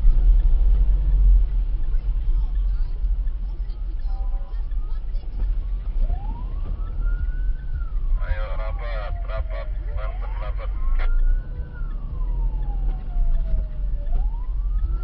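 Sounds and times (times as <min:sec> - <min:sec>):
low vehicle rumble: 0:00.0 - 0:15.0
siren wailing: 0:03.7 - 0:15.0.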